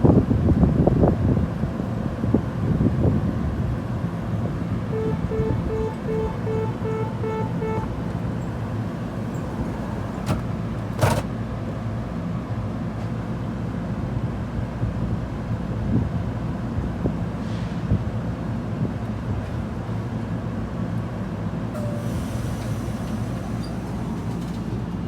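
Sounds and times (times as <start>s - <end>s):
train rumbling: 1.8s - 11.3s, 16.8s - 25.0s
repeated beeping tone: 4.9s - 10.3s.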